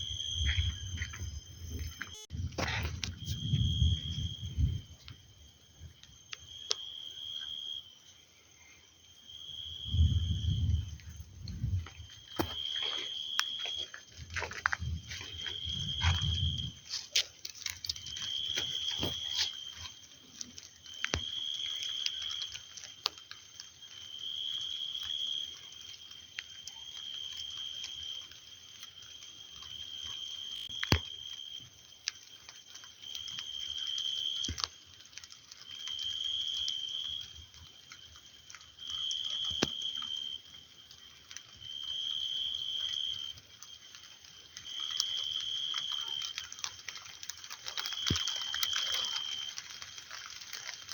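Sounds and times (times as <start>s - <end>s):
rain falling: 9.8s - 50.9s.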